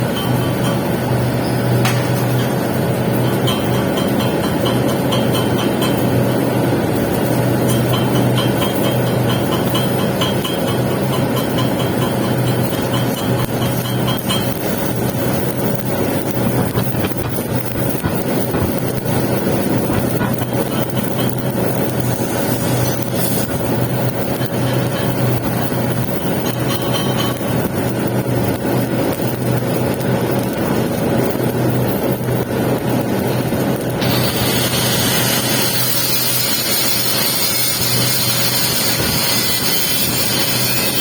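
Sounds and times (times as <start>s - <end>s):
welding arc crackling: 0.0s - 41.0s
machine hum: 33.0s - 41.0s.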